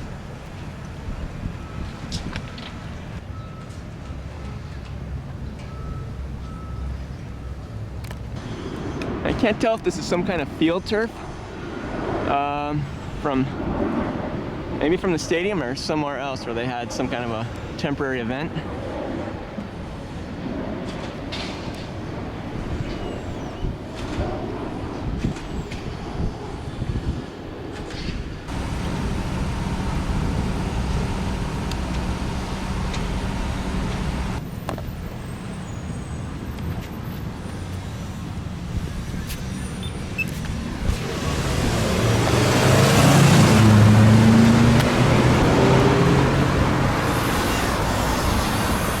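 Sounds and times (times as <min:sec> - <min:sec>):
heavy vehicle engine: 0:28.5 - 0:34.4, 0:40.9 - 0:49.0
passing cars: 0:28.5 - 0:34.4, 0:40.5 - 0:49.0.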